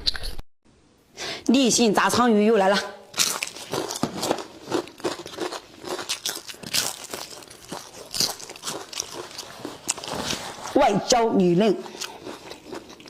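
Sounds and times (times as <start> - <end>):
chewing crispy fried fish: 3.1 - 10.8, 11.8 - 13.0.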